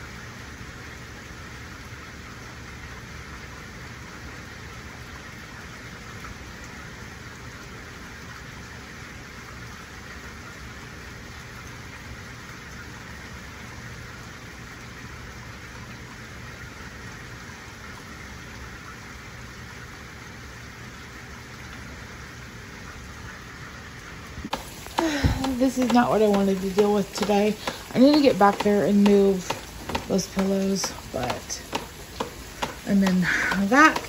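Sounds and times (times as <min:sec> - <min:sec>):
rain hissing: 0:21.8 - 0:34.0.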